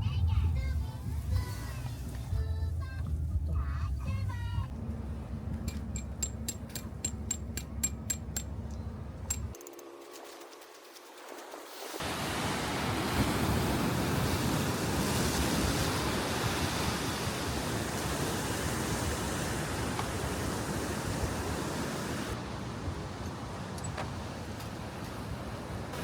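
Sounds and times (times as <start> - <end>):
sea surf rushing: 11.1 - 26.0.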